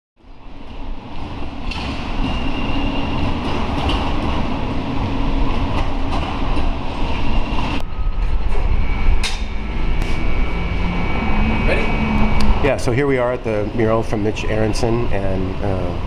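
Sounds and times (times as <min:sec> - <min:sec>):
light-rail train rumbling past: 0:00.2 - 0:16.0
thin high whine: 0:07.1 - 0:16.0.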